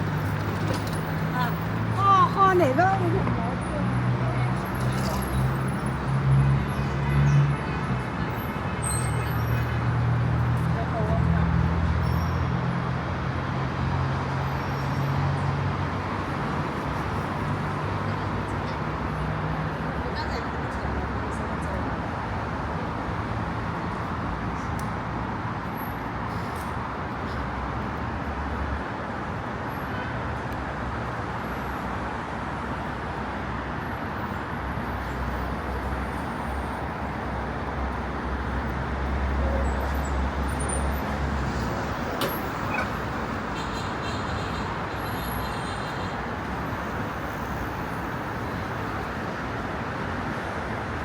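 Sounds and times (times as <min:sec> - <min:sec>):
heavy vehicle rumble: 0:00.0 - 0:14.4, 0:31.0 - 0:51.0
city street traffic: 0:00.0 - 0:51.0.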